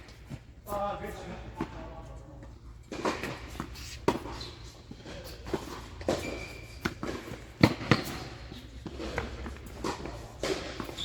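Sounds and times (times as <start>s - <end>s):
tennis ball struck and bouncing: 5.5s - 11.0s.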